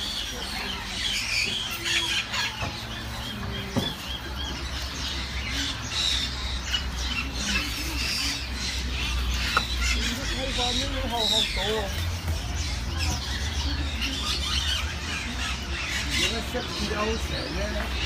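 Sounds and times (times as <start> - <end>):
birds calling and chirping: 0.0 - 18.0
repeated arched bird notes: 0.0 - 18.0.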